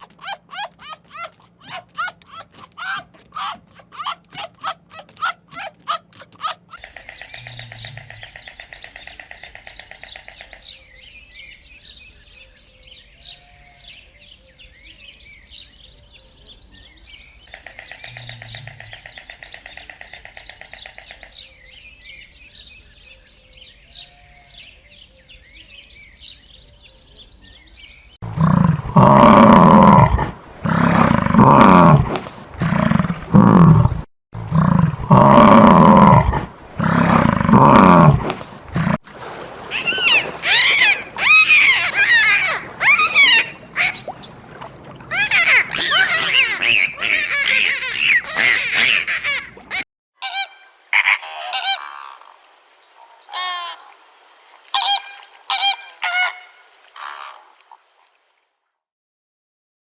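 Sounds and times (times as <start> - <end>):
rapid pulsing call: 0.0 - 10.8, 39.4 - 52.2
birds chirping: 0.0 - 28.2, 39.1 - 57.7
large animal roaring: 28.4 - 39.0.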